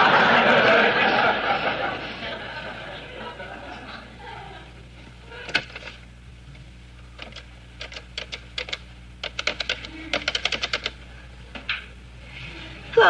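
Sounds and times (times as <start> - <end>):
rotary telephone dial clicks: 7.2 - 11.0.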